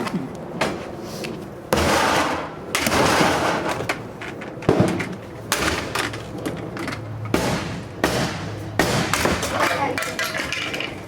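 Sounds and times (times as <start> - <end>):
crashing and clattering: 9.3 - 11.0.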